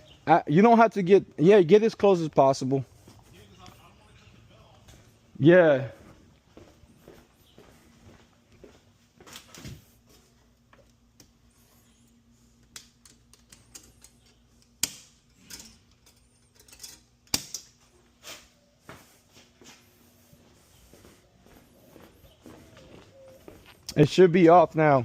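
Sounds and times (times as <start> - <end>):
faint steady hum: 0.0 - 25.0
tools and metal parts clicking: 12.6 - 17.8.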